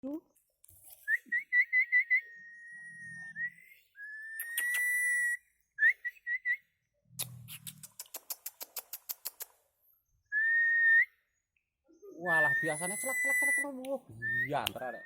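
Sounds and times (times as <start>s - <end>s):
quick clicks: 4.4s - 5.0s, 7.2s - 9.6s
person whistling: 12.3s - 15.0s.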